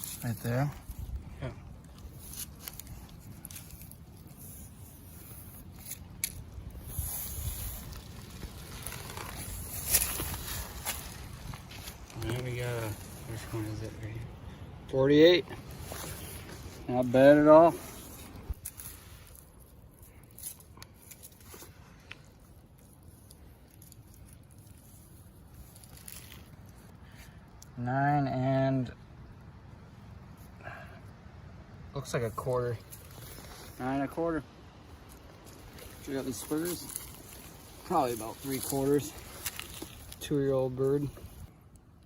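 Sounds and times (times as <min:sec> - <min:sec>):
scraping and rustling: 0:00.0 - 0:14.1, 0:34.7 - 0:41.5.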